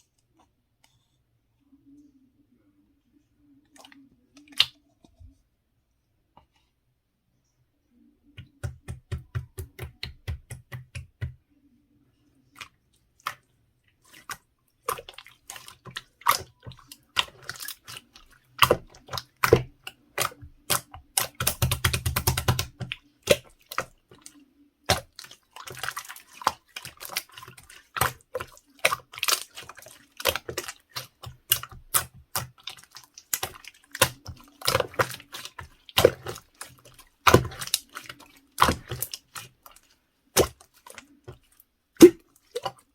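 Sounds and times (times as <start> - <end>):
slime squishing with sticky clicks: 14.1 - 42.9.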